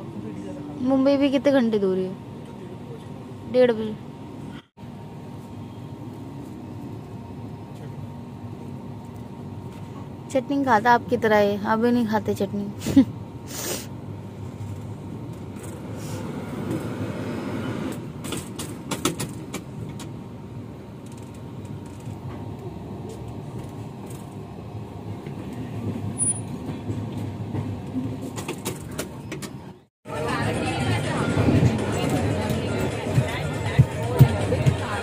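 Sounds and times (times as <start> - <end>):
train coach rumbling: 0.0 - 35.0.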